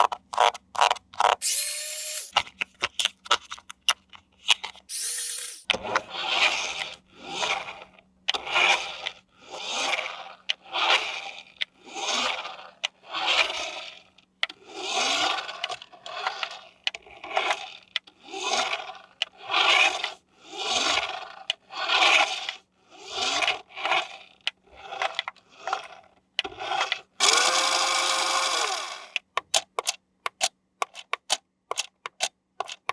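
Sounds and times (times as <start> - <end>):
scraping strokes: 1.4 - 2.3.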